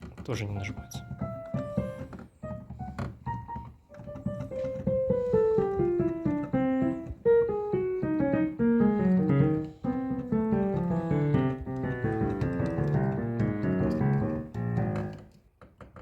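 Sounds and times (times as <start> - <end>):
piano key action knocking: 0.0 - 16.0
digital piano notes: 0.1 - 15.3.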